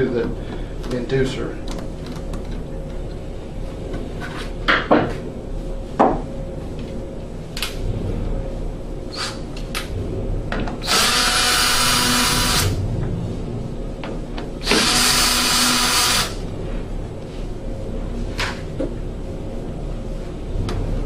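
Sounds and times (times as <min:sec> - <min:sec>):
cordless drill spinning: 0:10.8 - 0:12.8, 0:14.6 - 0:16.4.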